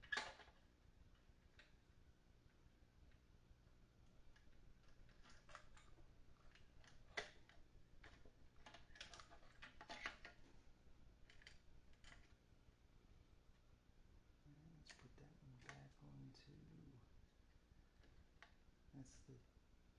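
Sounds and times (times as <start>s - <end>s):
small parts clicking and rattling: 4.3s - 10.5s, 11.2s - 12.4s.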